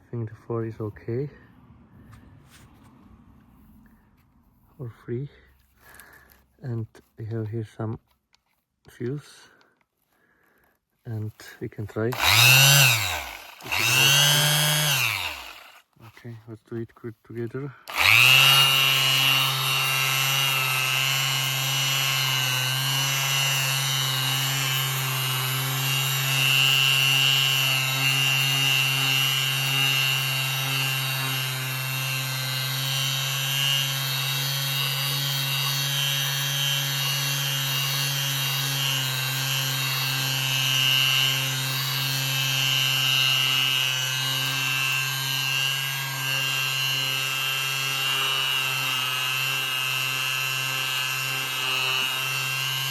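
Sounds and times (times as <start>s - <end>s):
orbital sander running: 12.0s - 16.0s, 17.9s - 52.9s.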